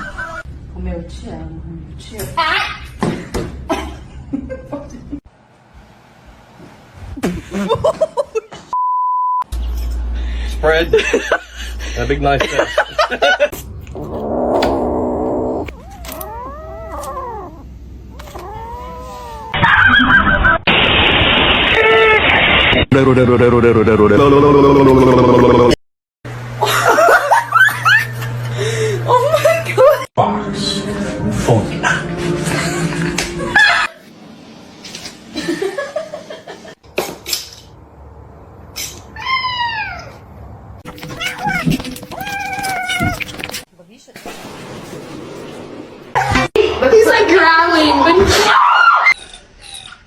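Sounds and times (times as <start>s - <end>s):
noisy wavering tone: 13.6s - 16.6s
cat yowling: 14.0s - 20.1s, 39.2s - 40.2s, 40.9s - 43.4s.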